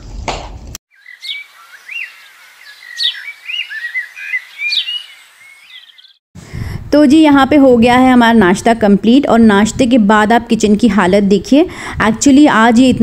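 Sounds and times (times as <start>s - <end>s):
birds chirping and calling: 0.9s - 6.2s.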